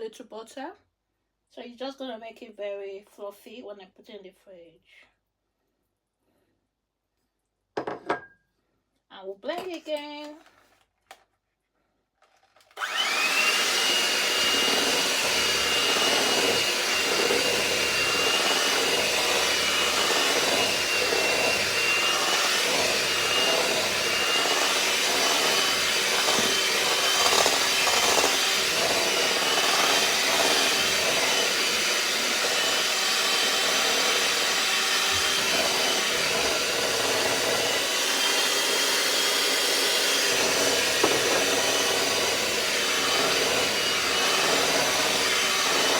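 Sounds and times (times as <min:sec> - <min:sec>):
electric mixer running: 0:12.7 - 0:45.9.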